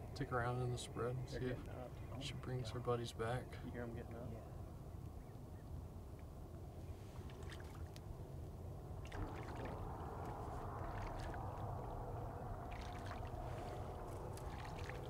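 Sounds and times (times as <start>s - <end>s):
small splashes and clicks: 7.2s - 8.1s, 9.0s - 15.0s
water splashing in a pond: 7.2s - 8.2s, 8.9s - 15.0s.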